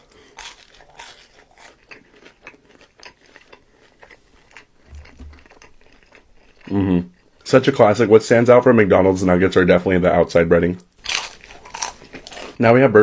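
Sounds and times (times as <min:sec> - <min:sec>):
chewing crunchy food: 0:00.0 - 0:07.5, 0:10.8 - 0:12.6.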